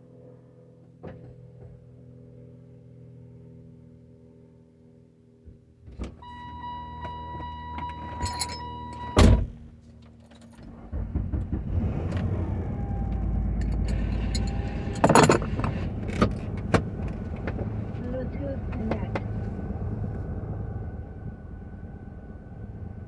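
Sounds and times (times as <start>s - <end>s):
electronic warning tone: 6.2s - 9.4s
car door thunk: 7.0s - 9.6s
steady low rumble: 10.8s - 23.0s.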